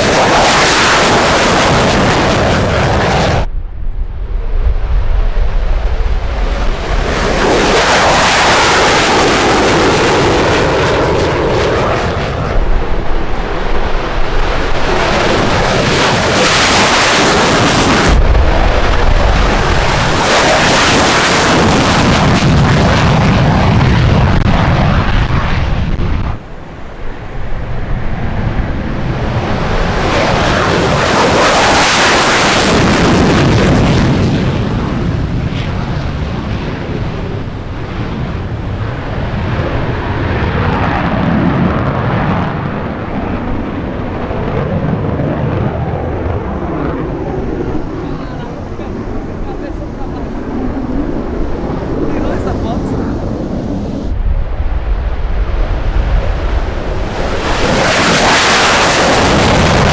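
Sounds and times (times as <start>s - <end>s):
jet engines roaring: 0.0s - 59.9s.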